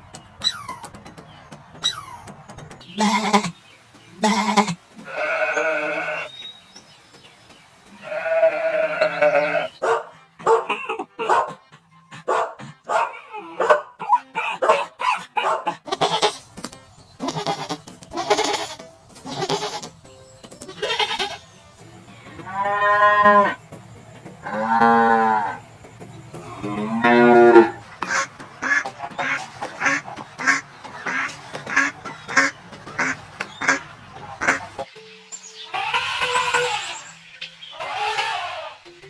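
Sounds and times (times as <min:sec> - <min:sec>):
goat bleating: 0:04.2 - 0:06.3, 0:07.9 - 0:09.8, 0:15.8 - 0:16.4, 0:17.2 - 0:20.0, 0:20.7 - 0:21.5, 0:22.4 - 0:23.6, 0:35.7 - 0:37.1, 0:37.8 - 0:38.8
rough animal calls: 0:04.2 - 0:06.3, 0:08.0 - 0:10.0, 0:26.4 - 0:33.8.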